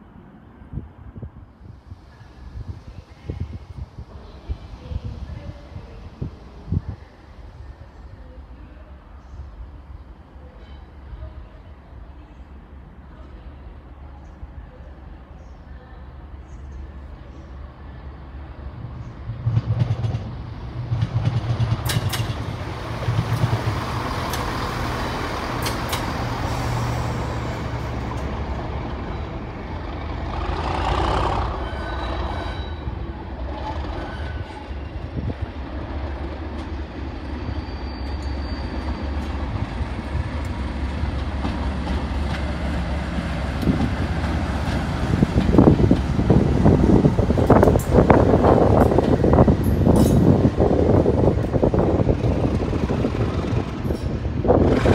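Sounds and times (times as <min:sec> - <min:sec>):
diesel train engine droning: 0:17.8 - 0:54.9.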